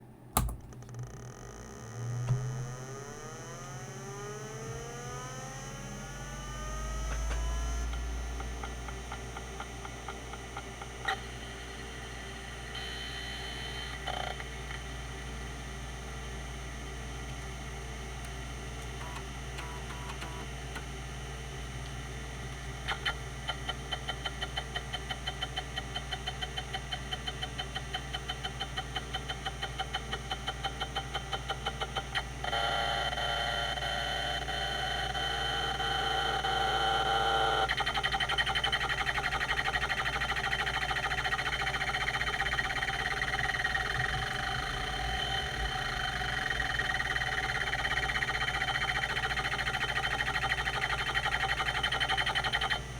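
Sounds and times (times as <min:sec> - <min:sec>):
hard drive spindle humming: 0:00.0 - 0:52.9
hard drive seek ticks: 0:07.0 - 0:52.9
hard drive squeaking tones: 0:31.6 - 0:52.9.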